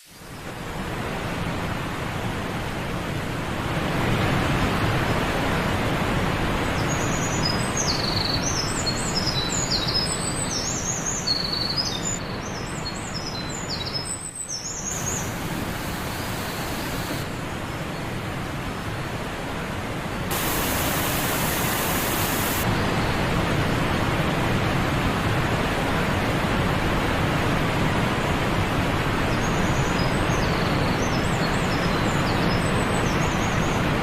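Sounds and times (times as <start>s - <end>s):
waterfall rushing: 14.9s - 17.3s, 20.3s - 27.8s.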